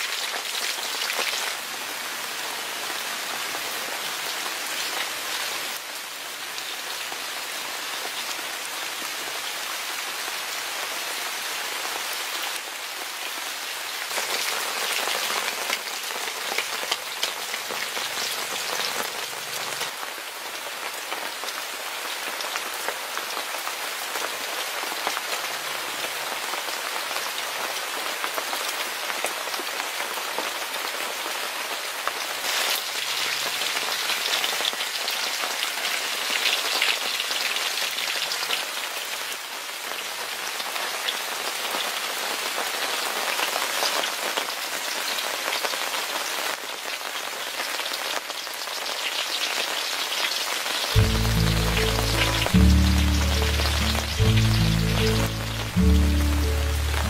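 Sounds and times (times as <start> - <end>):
food sizzling in a pan: 32.1 - 38.8, 40.6 - 57.0.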